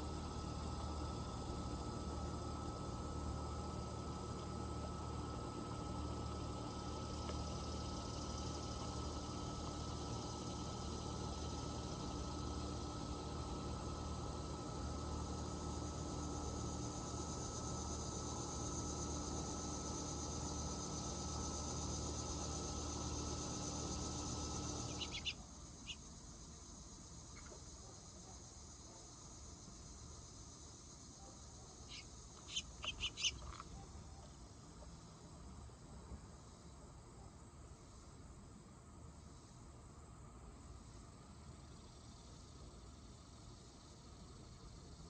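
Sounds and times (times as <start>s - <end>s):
insects trilling: 0.0s - 45.0s
mechanical hum: 0.0s - 45.0s
high bird chirps: 24.8s - 25.4s, 31.9s - 33.5s.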